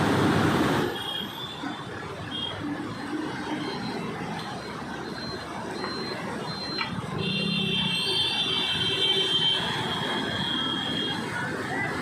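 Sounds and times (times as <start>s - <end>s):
rushing background noise: 0.0s - 12.0s
high-pitched electronic alarm tone: 1.5s - 8.8s
short high beeps: 5.0s - 7.0s.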